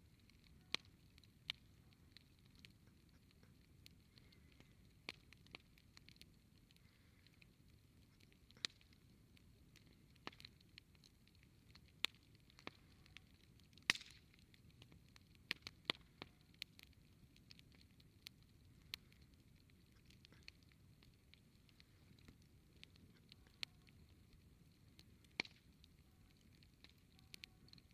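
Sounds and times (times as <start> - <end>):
campfire crackling and popping: 0.0 - 27.9
faint low background noise: 0.0 - 27.9.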